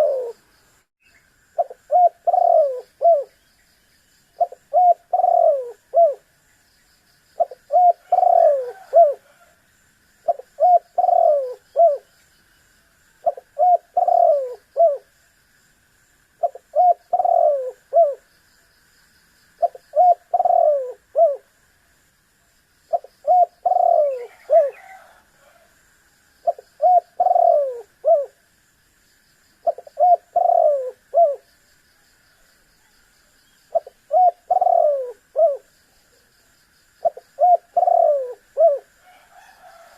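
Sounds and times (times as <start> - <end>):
dove cooing: 0.0 - 0.4, 1.6 - 3.4, 4.4 - 6.3, 7.4 - 9.6, 10.2 - 12.1, 13.2 - 15.1, 16.4 - 18.2, 19.6 - 21.5, 22.9 - 25.8, 26.4 - 28.4, 29.6 - 31.5, 33.7 - 35.7, 37.0 - 39.9.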